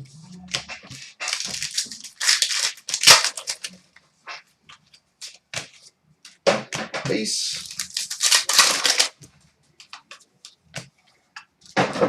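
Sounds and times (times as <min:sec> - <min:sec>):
wrapper tearing and crinkling: 0:00.9 - 0:03.8, 0:07.4 - 0:09.2.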